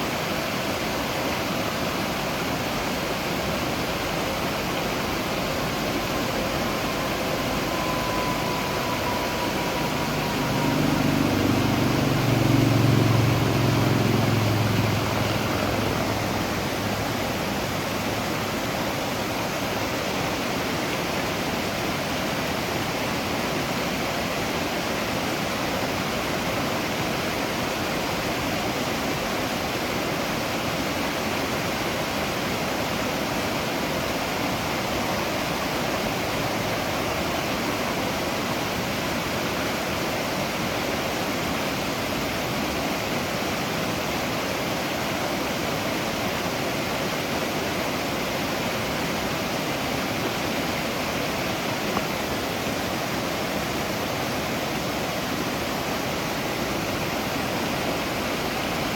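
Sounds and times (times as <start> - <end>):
waterfall rushing: 0.0 - 58.9
low rumble: 3.9 - 19.1.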